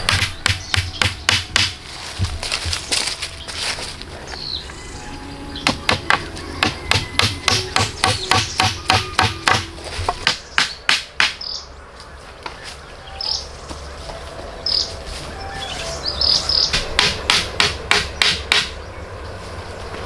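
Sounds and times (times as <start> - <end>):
hammer blows: 0.0 - 3.2, 4.7 - 11.5, 16.4 - 18.9
bird chirping: 0.0 - 20.0.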